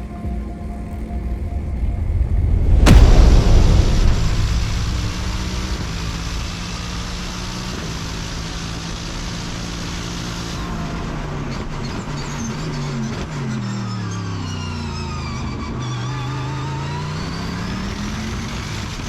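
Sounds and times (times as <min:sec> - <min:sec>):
deep boom: 0:00.0 - 0:10.2
race car engine running hard: 0:00.8 - 0:14.3.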